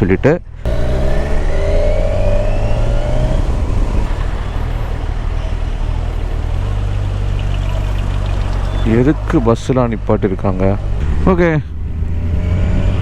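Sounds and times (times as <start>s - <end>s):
motorcycle engine accelerating: 0.6s - 13.0s
wind noise over helmet: 3.1s - 4.9s.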